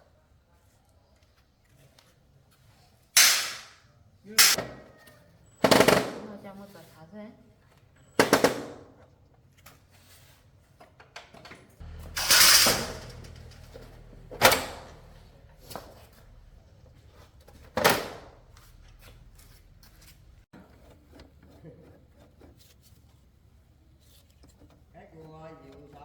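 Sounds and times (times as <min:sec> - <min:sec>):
sharp metallic knocks: 0:03.2 - 0:03.7
loud hiss: 0:03.2 - 0:03.8.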